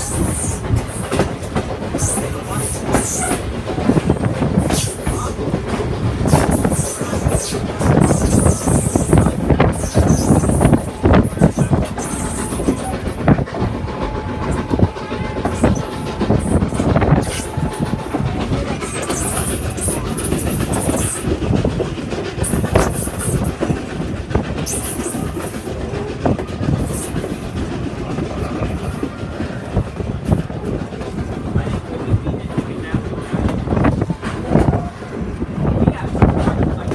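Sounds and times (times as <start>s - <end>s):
wheels clicking over rail joints: 0.0s - 34.8s
train rolling along track: 0.0s - 36.9s.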